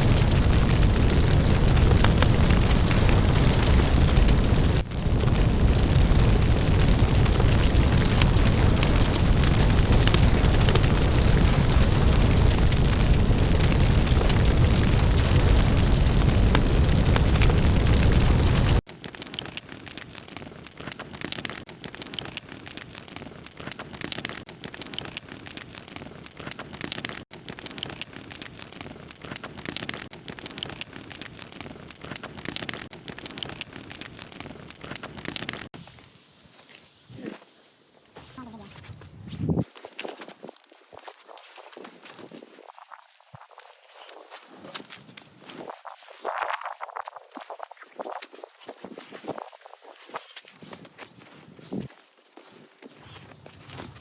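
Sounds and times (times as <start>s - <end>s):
burning matches roaring: 0.0s - 18.8s
soft crunches: 19.2s - 54.0s.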